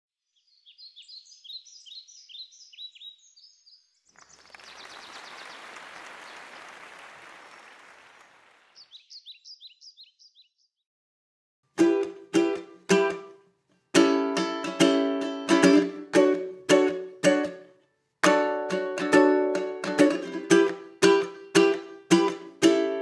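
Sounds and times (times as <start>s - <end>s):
bird chirping: 0.2s - 5.7s, 8.6s - 10.8s.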